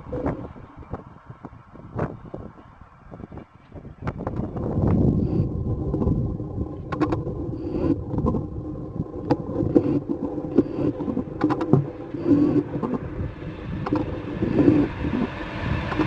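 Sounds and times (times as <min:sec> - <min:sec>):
train rumble: 0:00.0 - 0:16.0
faint high whine: 0:04.6 - 0:16.0
train clicks: 0:09.2 - 0:13.1, 0:13.8 - 0:15.3.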